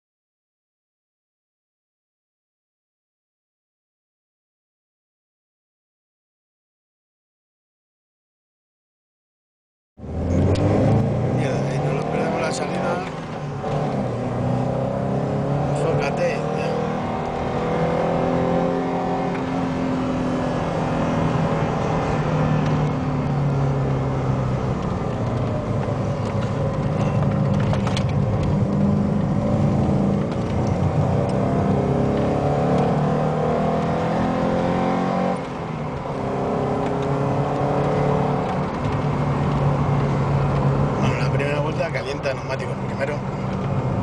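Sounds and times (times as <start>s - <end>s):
car engine accelerating through gears: 10.0s - 44.0s.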